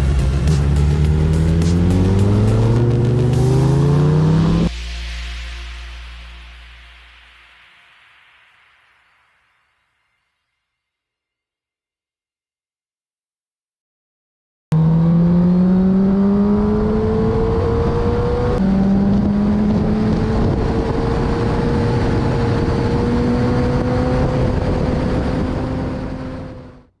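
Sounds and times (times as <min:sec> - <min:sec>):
motorcycle engine accelerating: 0:00.0 - 0:04.7, 0:14.7 - 0:27.0.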